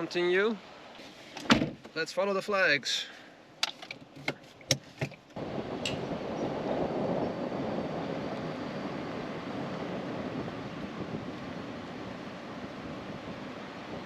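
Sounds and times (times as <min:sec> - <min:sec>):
car moving: 0:03.7 - 0:14.0
wind on microphone: 0:05.4 - 0:14.0.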